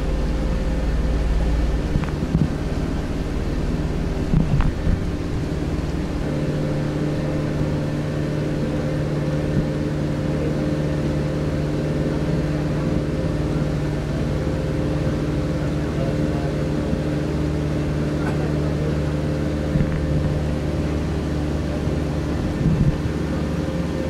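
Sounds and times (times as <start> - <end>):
boat motor humming: 0.0 - 24.0.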